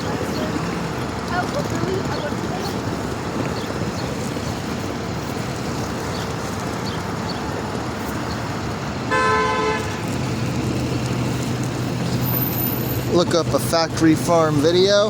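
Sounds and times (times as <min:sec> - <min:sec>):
city traffic: 0:00.0 - 0:15.0
vehicle engine hum: 0:00.0 - 0:15.0
car horn: 0:09.1 - 0:10.2.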